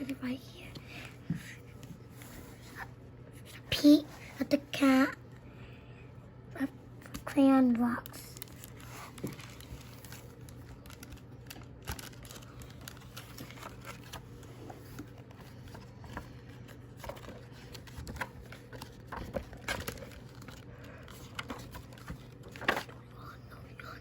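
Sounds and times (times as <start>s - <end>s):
steady low hum: 0.0s - 24.0s
paper rustling: 8.0s - 23.0s.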